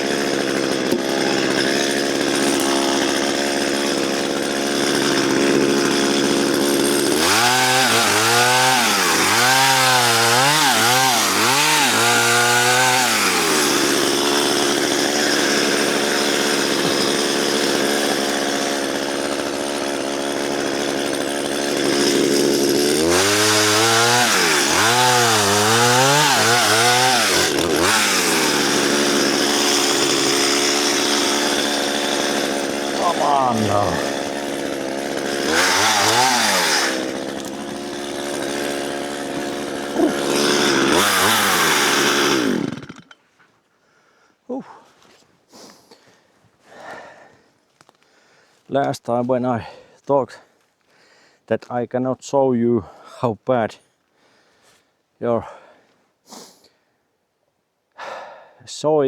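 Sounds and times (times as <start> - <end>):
chainsaw cutting wood: 0.0 - 43.2.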